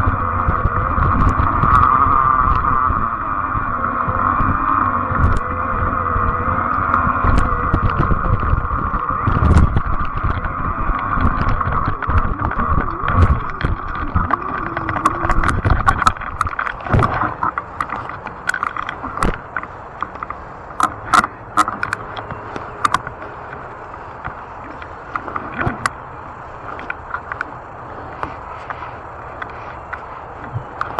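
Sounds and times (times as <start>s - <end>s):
tyre and wind rumble: 0.0s - 30.9s
bike clicks and rattles: 0.1s - 23.6s, 26.6s - 30.9s
steady hum: 7.8s - 30.9s.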